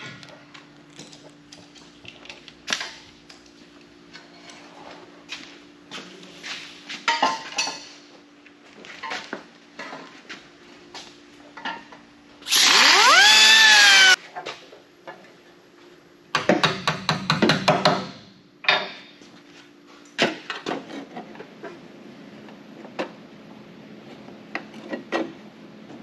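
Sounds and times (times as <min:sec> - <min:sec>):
power tool whining: 0:12.5 - 0:14.2.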